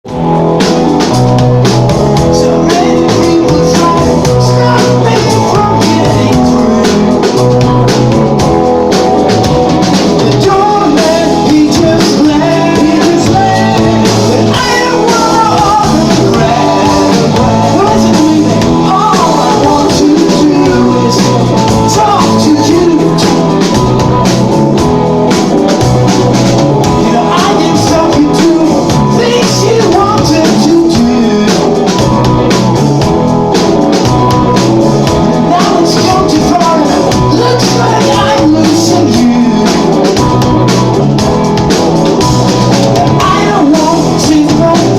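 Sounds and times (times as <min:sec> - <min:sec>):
rock band playing: 0:00.0 - 0:44.9
person singing: 0:02.1 - 0:07.8, 0:10.0 - 0:24.2, 0:26.8 - 0:32.3, 0:34.2 - 0:40.5, 0:42.8 - 0:44.9.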